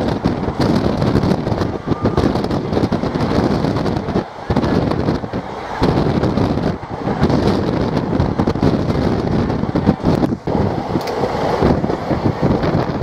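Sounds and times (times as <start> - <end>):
train rumble: 0.0 - 13.0
wind buffeting microphone: 0.0 - 13.0
wheels and couplings clattering: 9.7 - 13.0.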